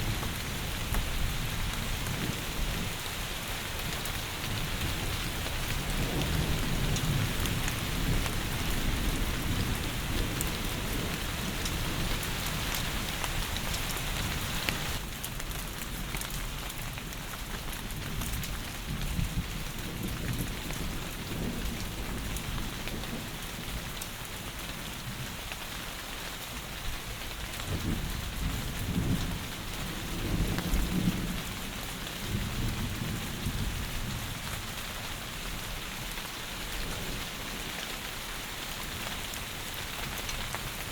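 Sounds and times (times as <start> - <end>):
heavy rain falling: 0.0 - 40.9
low thunder rumbles: 27.6 - 34.8.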